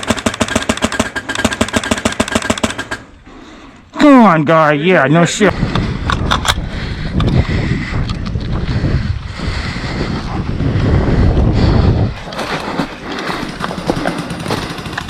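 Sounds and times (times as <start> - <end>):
rapid clicks: 0.0 - 3.1
wind rumbling on microphone: 5.4 - 14.0.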